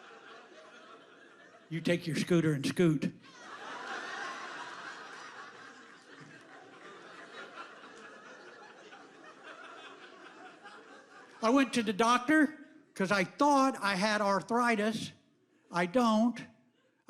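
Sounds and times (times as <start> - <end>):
audience laughing: 0.0 - 12.9.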